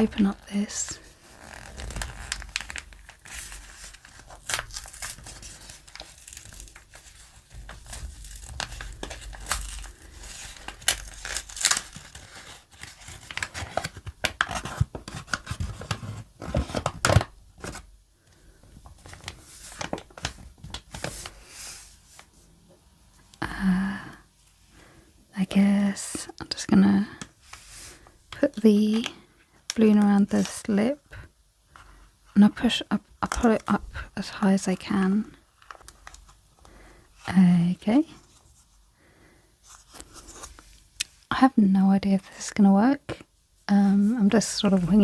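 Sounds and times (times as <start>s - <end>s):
packaging crinkling and tearing: 0.0s - 17.9s, 18.8s - 21.4s, 35.5s - 36.4s.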